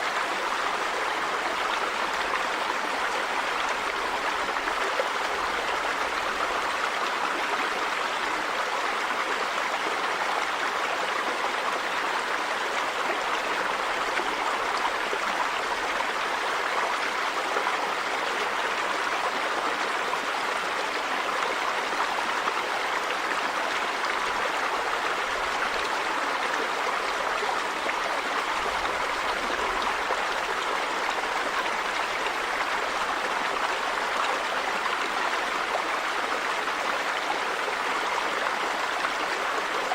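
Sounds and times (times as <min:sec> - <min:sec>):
river water over stones: 0:00.0 - 0:39.9.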